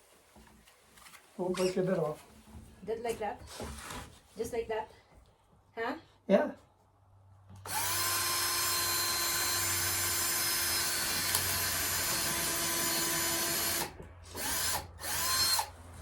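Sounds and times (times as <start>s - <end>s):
electric drill boring into wood: 7.6s - 15.7s.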